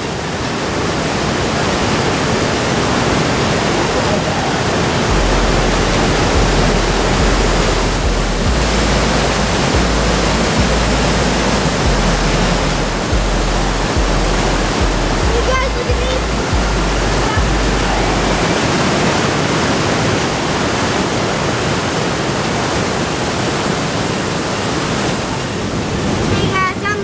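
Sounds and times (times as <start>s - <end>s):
waterfall rushing: 0.0s - 27.0s
deep low rumble: 5.1s - 18.6s.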